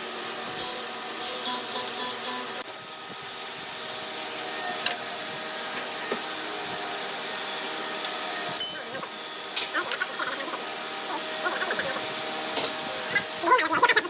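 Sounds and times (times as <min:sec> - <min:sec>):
power tool cutting wood: 0:00.0 - 0:02.7.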